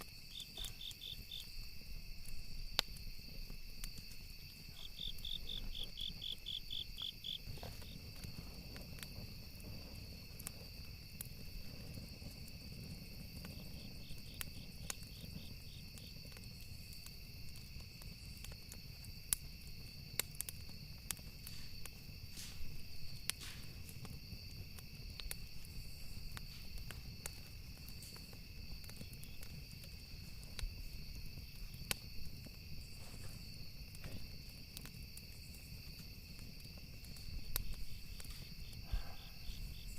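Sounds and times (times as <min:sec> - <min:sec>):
crickets chirring: 0:00.0 - 0:39.9
low rumble of flames: 0:00.0 - 0:39.9
wood crackling and popping: 0:00.0 - 0:39.9.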